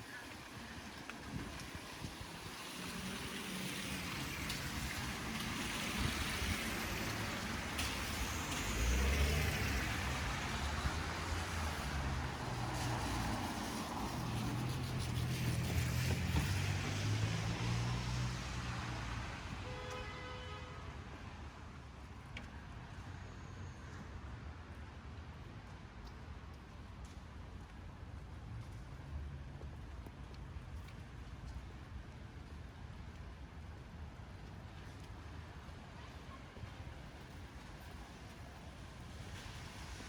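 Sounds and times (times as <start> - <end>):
vehicles rumbling past: 0.2 - 19.6.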